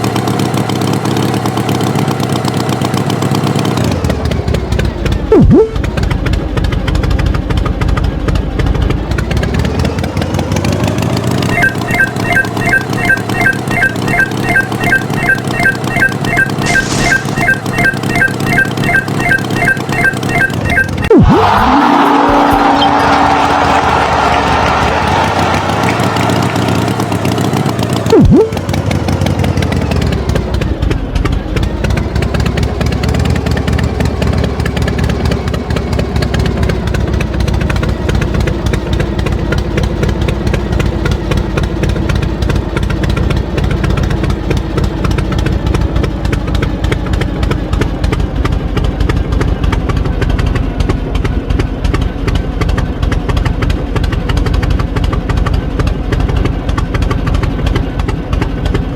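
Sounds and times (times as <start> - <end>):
engine puttering: 0.0 - 58.9.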